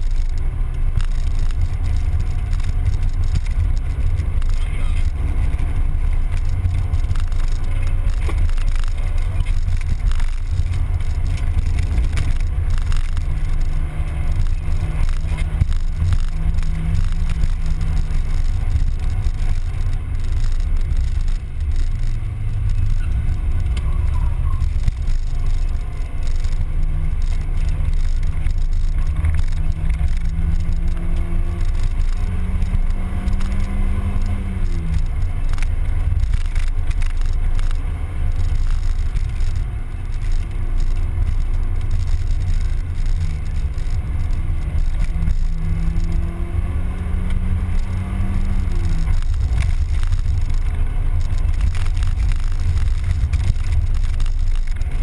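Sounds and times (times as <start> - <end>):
car engine running: 0.0 - 55.0.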